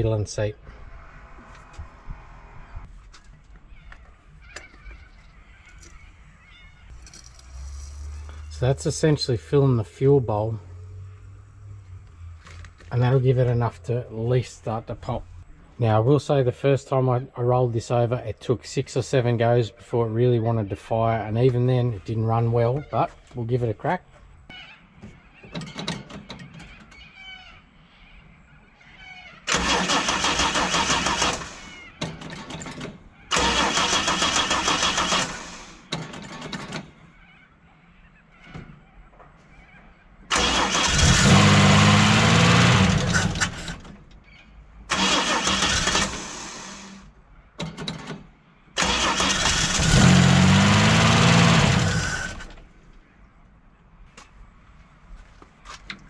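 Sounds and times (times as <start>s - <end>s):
engine cranking on starter: 29.5s - 31.8s, 32.4s - 36.6s, 40.3s - 43.9s, 44.9s - 47.1s, 48.8s - 52.6s.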